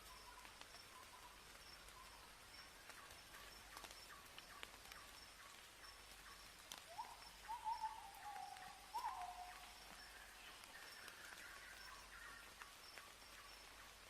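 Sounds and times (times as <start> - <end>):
whistled bird call: 6.9 - 9.6.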